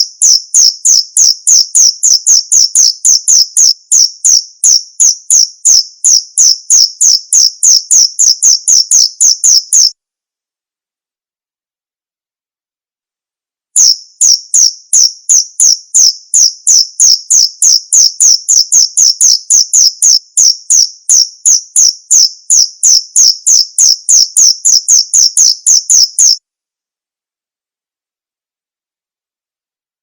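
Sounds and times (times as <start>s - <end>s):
cricket chirping: 0.0s - 9.9s, 13.8s - 26.4s.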